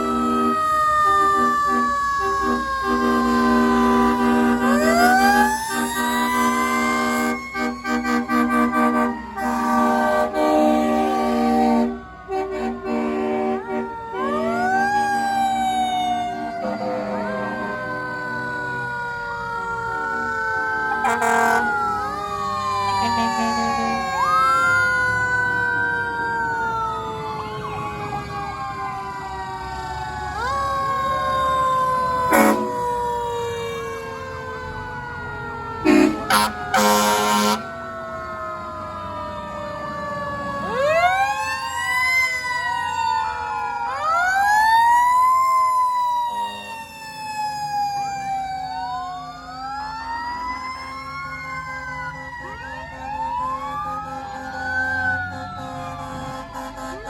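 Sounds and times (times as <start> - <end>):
loud horn blasts: 0.0 - 14.6, 16.3 - 18.0, 20.9 - 21.8, 23.0 - 24.0, 32.3 - 32.8, 35.8 - 37.7, 55.2 - 57.0
fire truck sirens wailing: 0.0 - 57.0.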